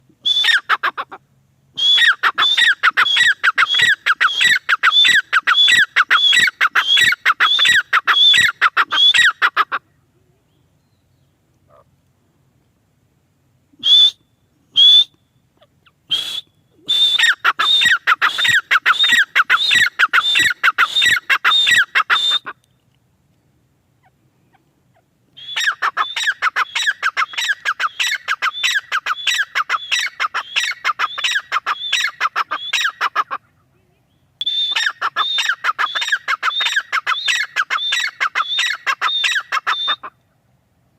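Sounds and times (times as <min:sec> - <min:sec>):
francolin calling shrill notes: 0:01.8 - 0:09.4, 0:13.8 - 0:22.6, 0:25.4 - 0:33.0, 0:34.4 - 0:40.1.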